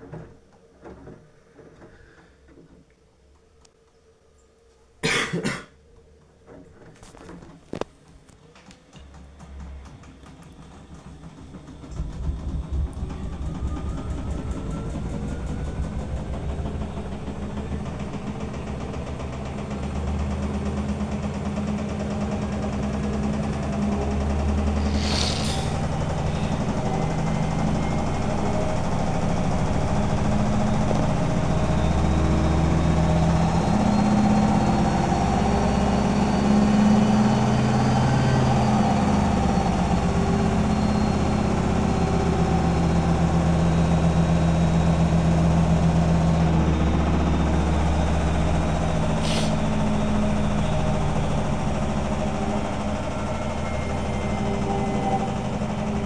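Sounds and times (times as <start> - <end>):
washing machine drum spinning: 9.2 - 25.0.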